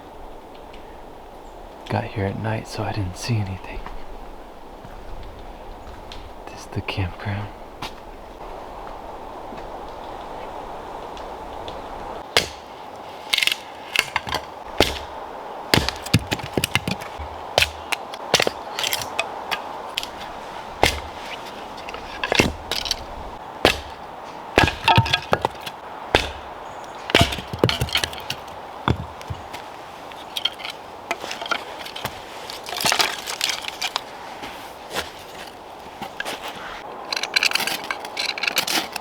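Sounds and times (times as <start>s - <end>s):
background hiss: 0.0s - 37.2s
dry wood cracking and snapping: 11.7s - 39.0s.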